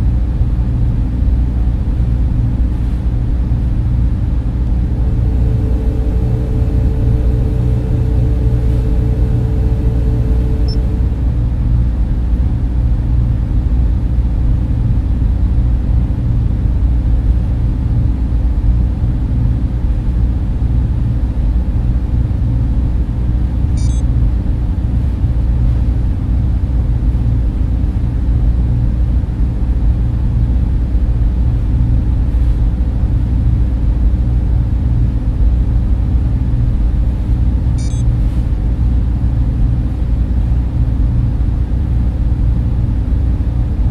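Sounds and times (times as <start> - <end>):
server fans humming: 0.0 - 43.9.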